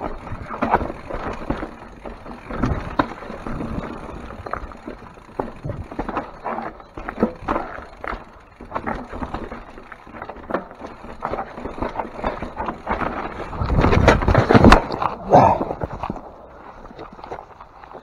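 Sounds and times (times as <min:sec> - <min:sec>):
tyres knocking over rocks: 0:00.0 - 0:16.4
bike frame and chain rattling: 0:00.0 - 0:18.0
wind rumble on microphone: 0:13.4 - 0:16.2.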